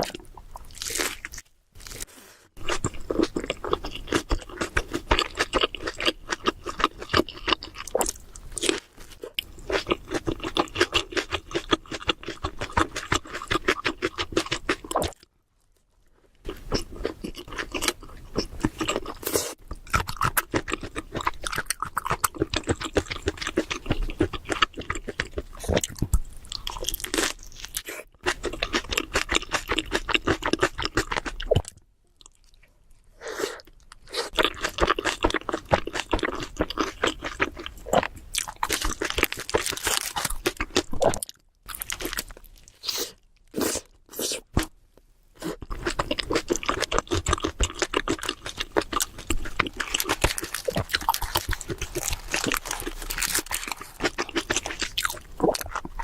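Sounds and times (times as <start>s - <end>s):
chewing crunchy sandwich: 2.6s - 44.7s, 45.4s - 56.0s.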